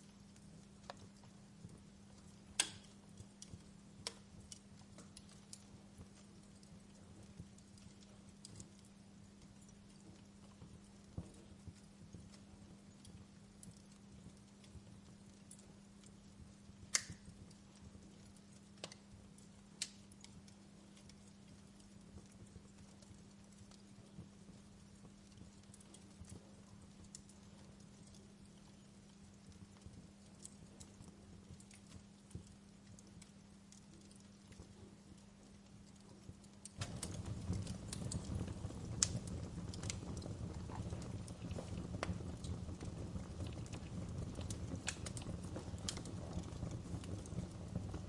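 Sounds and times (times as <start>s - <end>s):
faint low hum: 0.0s - 48.0s
fire popping: 0.0s - 48.0s
wood fire crackling: 0.0s - 48.0s
sharp pops of fire: 1.7s - 6.8s, 16.8s - 17.6s, 19.7s - 20.5s, 36.6s - 48.0s.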